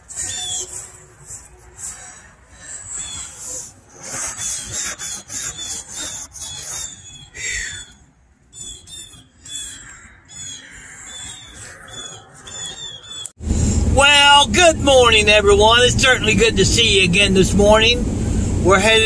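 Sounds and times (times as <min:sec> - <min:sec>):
fingers scraping frost on windshield: 0:03.1 - 0:07.1.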